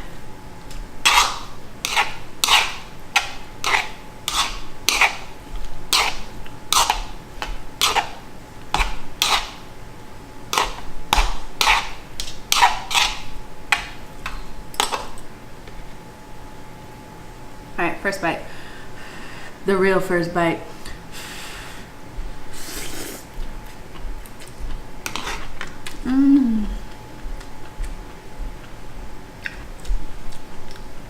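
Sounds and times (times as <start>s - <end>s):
utensil scraping cookware: 12.5s - 13.2s.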